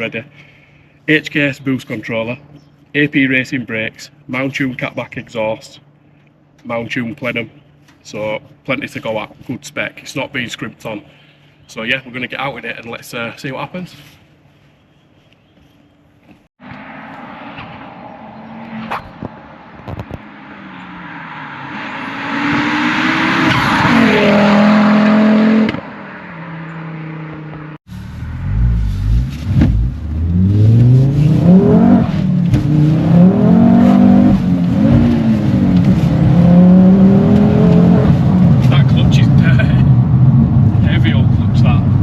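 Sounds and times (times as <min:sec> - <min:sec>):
car engine accelerating: 0:16.6 - 0:42.0
engine revving: 0:16.6 - 0:42.0.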